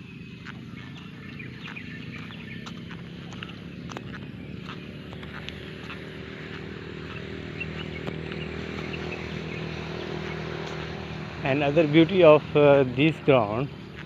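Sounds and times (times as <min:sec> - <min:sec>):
footsteps walking: 0:00.1 - 0:11.1.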